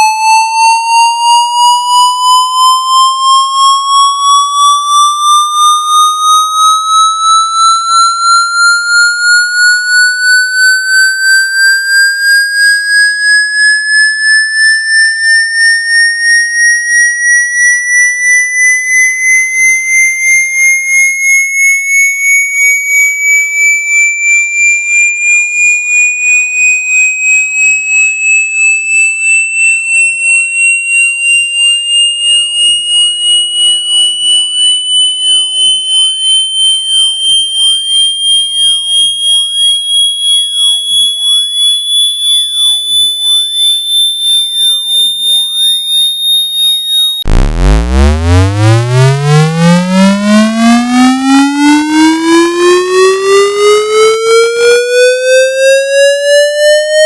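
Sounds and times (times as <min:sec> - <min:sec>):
pulsing high synthetic tone: 0:00.0 - 0:28.7, 0:30.6 - 0:57.0
buzzy tone sweeping upward: 0:47.2 - 0:57.0.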